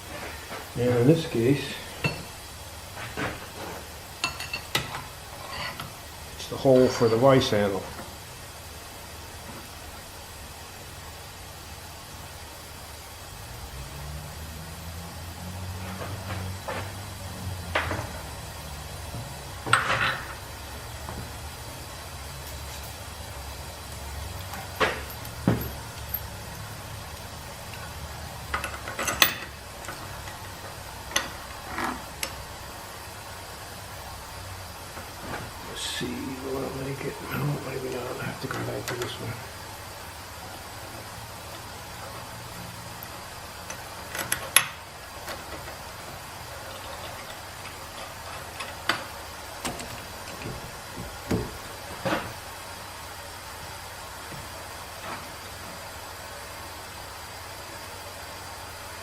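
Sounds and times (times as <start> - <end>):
metal parts clinking: 28.5 - 30.0.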